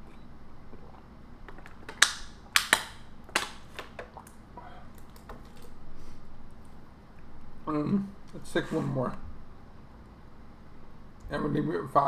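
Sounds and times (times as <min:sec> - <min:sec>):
plastic clicks and snaps: 0:01.5 - 0:05.8.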